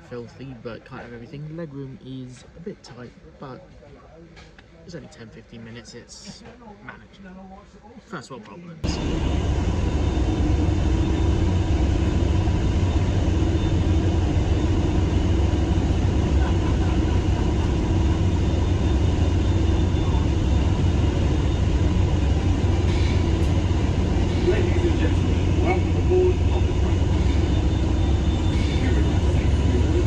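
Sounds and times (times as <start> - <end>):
hovercraft engines droning: 8.8 - 30.0.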